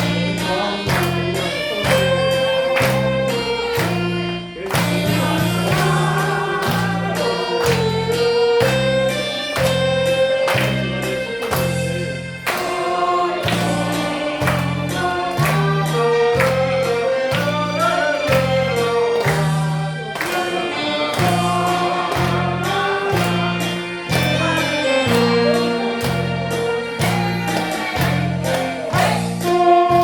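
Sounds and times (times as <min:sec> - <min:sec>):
saxophone melody: 0:00.0 - 0:30.0.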